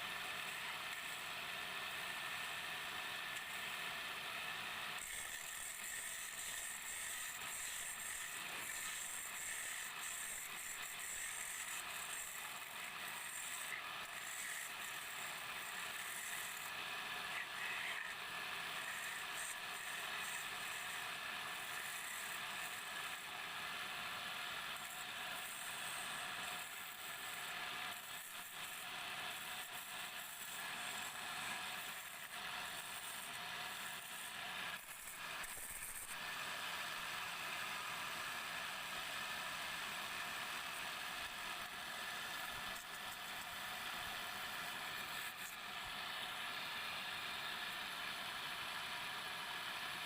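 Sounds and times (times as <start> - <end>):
lathe tool scraping wood: 0.4 - 1.2, 4.9 - 23.3, 24.5 - 36.2.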